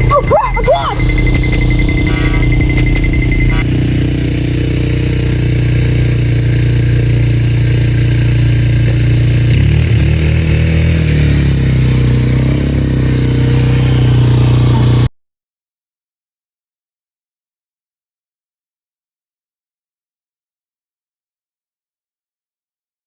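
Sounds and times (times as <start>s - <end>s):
quad bike engine running: 0.0s - 15.1s.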